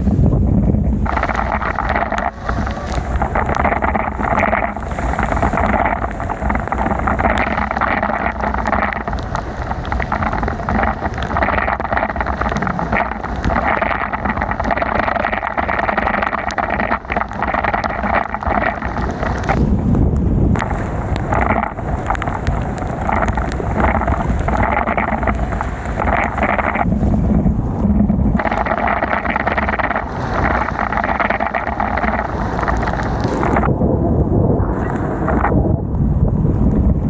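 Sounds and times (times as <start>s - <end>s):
wind rumbling on microphone: 0.0s - 37.0s
small ticks: 1.0s - 19.6s, 20.6s - 26.9s
bicycle tyres hissing on wet road: 1.1s - 11.5s, 20.6s - 26.9s.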